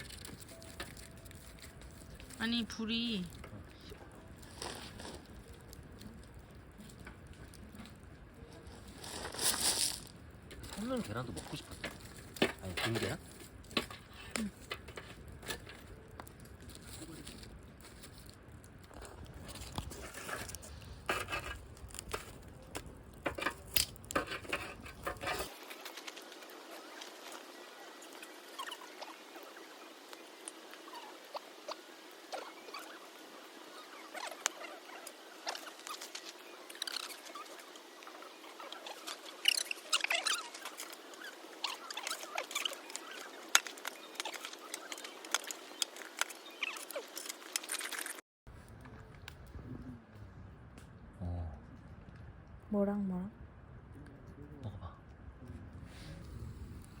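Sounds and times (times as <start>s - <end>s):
thin squeaks: 0.0s - 2.4s, 23.4s - 48.2s
wood fire crackling: 0.0s - 57.0s.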